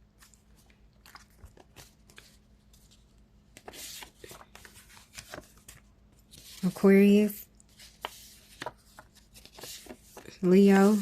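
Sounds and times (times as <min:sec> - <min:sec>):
cards rustling and tapping: 0:07.6 - 0:11.0.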